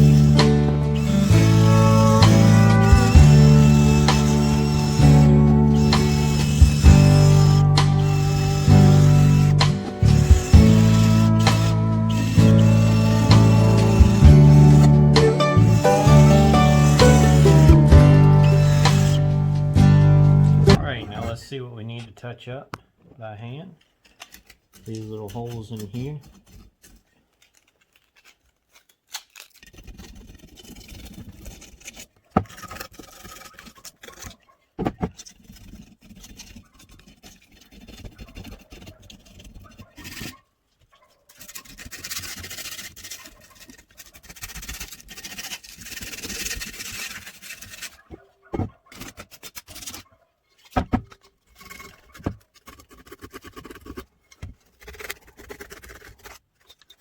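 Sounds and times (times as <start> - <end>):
scraping on metal: 29.6 - 57.0.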